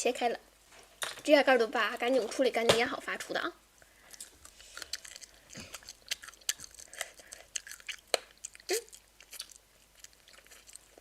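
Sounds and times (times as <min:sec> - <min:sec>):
crunchy chewing: 0:04.0 - 0:11.0.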